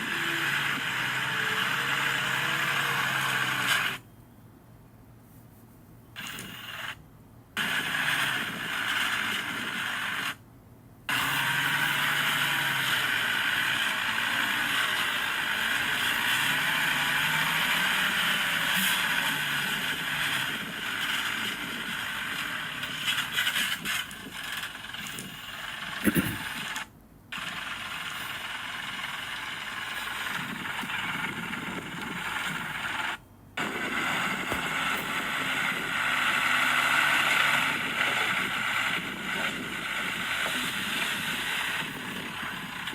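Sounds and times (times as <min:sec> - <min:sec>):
diesel machinery engine: 0:00.0 - 0:04.1, 0:11.1 - 0:42.9
mechanical clatter: 0:11.1 - 0:42.9.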